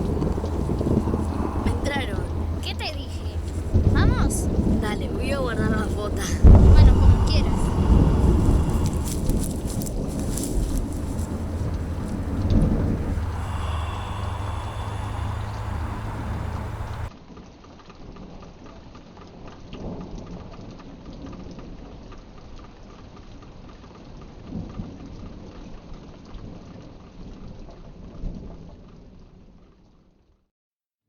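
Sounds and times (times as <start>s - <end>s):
loud low rumble: 0.0s - 17.1s
rain-like pattering: 0.0s - 17.1s.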